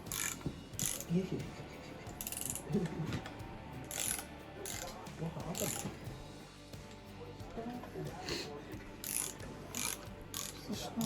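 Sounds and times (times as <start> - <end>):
hand ratchet clicking: 0.0 - 6.2, 9.0 - 11.0.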